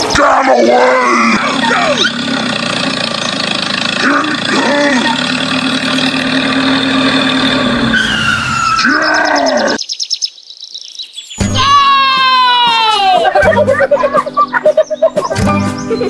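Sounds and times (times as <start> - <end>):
small engine running: 1.0 - 8.8.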